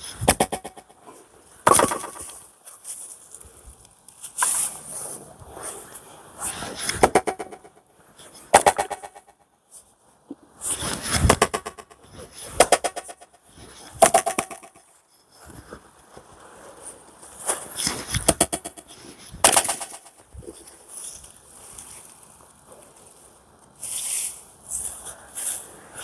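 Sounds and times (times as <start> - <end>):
axe striking wood: 0.2 - 0.9, 1.7 - 2.4, 6.9 - 7.7, 8.6 - 9.2, 14.0 - 14.7, 18.1 - 20.2.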